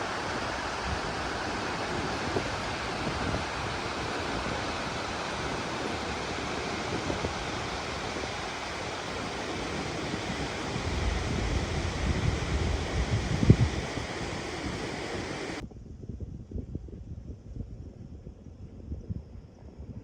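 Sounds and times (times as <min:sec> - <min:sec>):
steady rushing noise: 0:00.0 - 0:15.6
wind rumble on microphone: 0:00.0 - 0:20.0.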